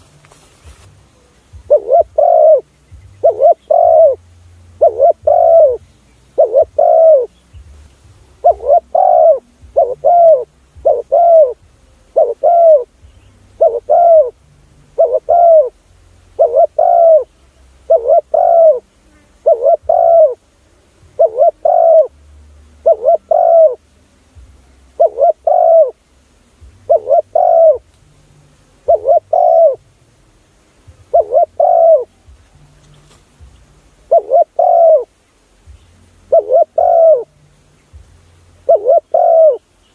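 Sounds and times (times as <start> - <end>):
dove cooing: 1.5 - 7.4, 8.3 - 13.0, 13.6 - 15.8, 16.4 - 22.2, 22.8 - 24.0, 24.9 - 26.1, 26.8 - 27.9, 28.8 - 29.8, 31.0 - 32.5, 33.9 - 35.1, 36.2 - 37.4, 38.6 - 39.7.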